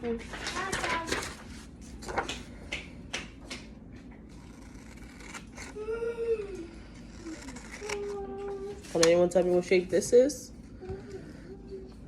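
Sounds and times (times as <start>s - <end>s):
paper handling: 0.2s - 2.6s
scissors snipping paper: 4.2s - 9.2s.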